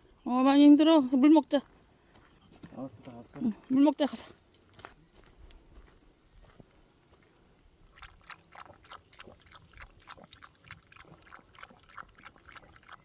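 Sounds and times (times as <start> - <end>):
dog lapping water: 7.9 - 13.0.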